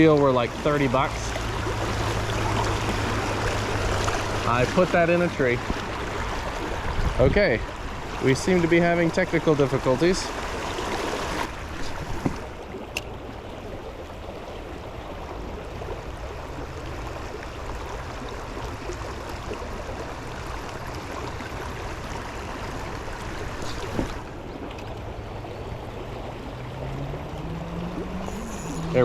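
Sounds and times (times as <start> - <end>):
river water rushing: 0.0 - 29.0
low hum rising in pitch: 24.9 - 29.0.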